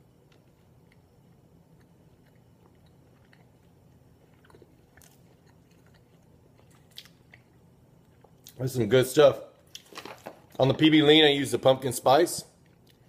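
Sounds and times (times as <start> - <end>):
faint chewing with mouth clicks: 0.0 - 8.6, 12.5 - 13.0.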